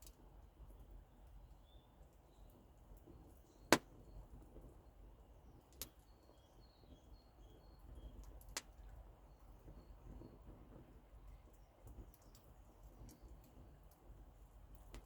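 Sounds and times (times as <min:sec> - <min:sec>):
campfire wood popping: 0:00.0 - 0:07.0, 0:07.8 - 0:15.0
faint high bird chirps: 0:05.9 - 0:08.4.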